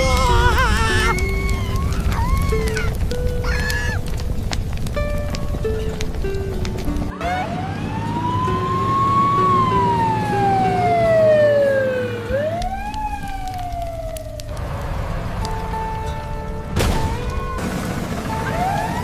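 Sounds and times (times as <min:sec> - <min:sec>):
background music: 0:00.0 - 0:19.0
wailing siren sound effect: 0:07.1 - 0:14.6, 0:18.2 - 0:19.0.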